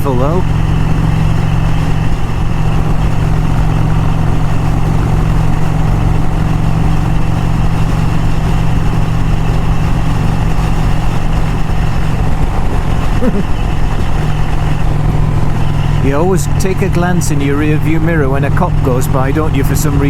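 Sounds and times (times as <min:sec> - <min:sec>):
motorcycle engine cruising: 0:00.0 - 0:20.0
wind and road rush: 0:00.0 - 0:20.0.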